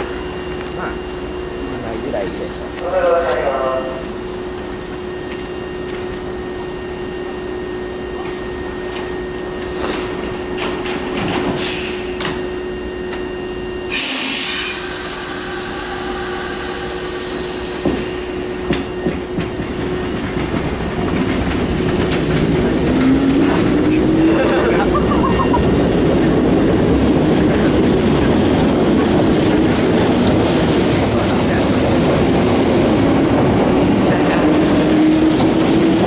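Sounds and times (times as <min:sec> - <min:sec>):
train motor whine rising: 0:00.0 - 0:32.9
train electrical hum: 0:00.0 - 0:36.0
compressed air hiss: 0:13.9 - 0:17.8.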